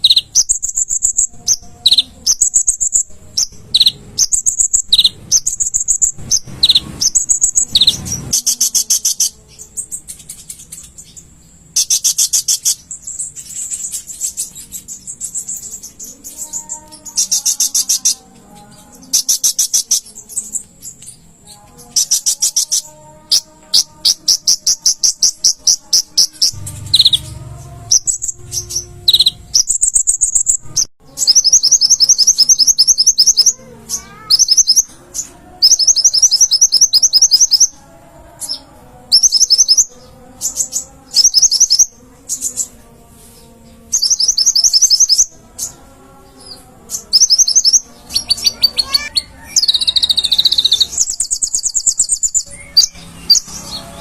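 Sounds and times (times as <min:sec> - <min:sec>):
bird singing high trills: 0:00.0 - 0:42.8, 0:43.4 - 0:54.0.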